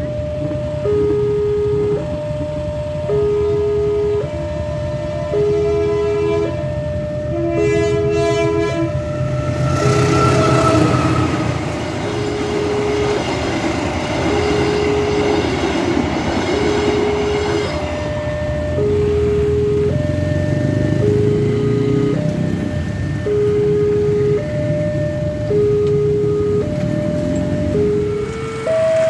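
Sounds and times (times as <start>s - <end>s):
level-crossing alarm two-tone: 0.0s - 29.0s
train horn: 5.0s - 13.1s
train wheels on rails: 8.7s - 20.3s, 20.9s - 29.0s.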